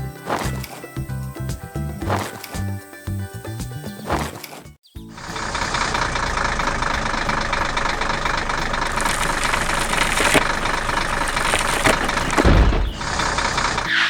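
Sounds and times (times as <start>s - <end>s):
vehicle engine idling: 5.1s - 14.0s.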